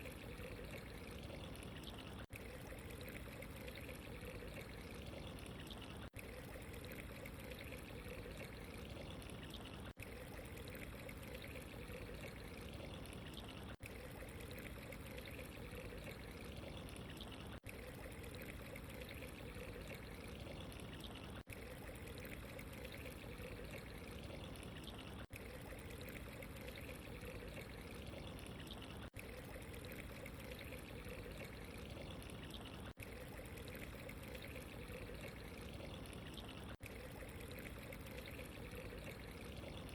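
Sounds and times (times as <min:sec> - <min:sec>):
running water trickling: 0:00.0 - 0:39.9.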